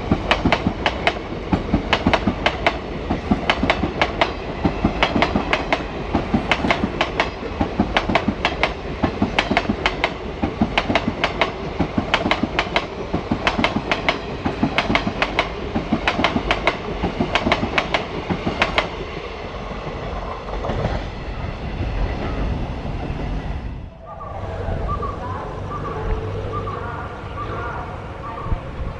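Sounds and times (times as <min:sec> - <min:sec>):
train wheels clacking over rail joints: 0:00.0 - 0:19.2
train rumble: 0:00.0 - 0:28.9.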